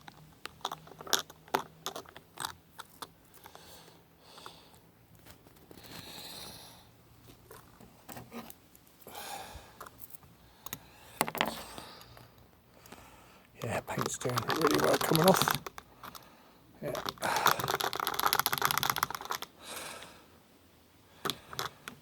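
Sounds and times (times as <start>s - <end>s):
metal toy cars clicking: 0.0s - 3.6s, 13.6s - 19.5s, 21.2s - 22.0s.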